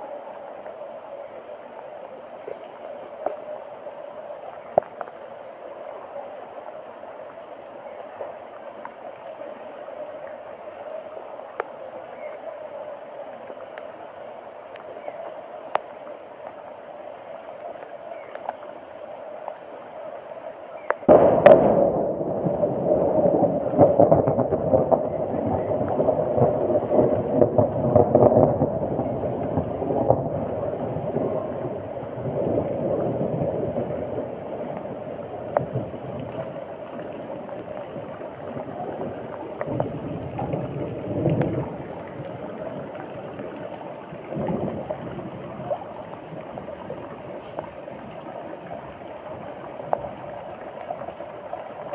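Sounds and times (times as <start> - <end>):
floodwater sloshing and gurgling: 0.0 - 51.9.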